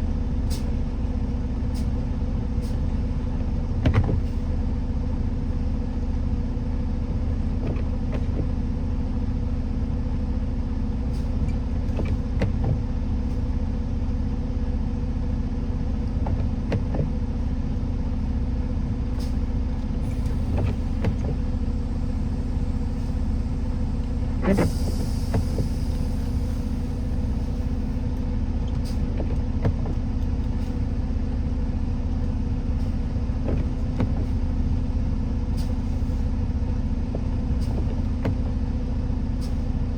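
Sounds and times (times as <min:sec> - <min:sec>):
vehicle engine and road rumble: 0:00.0 - 0:39.9
brief hiss: 0:21.7 - 0:27.9.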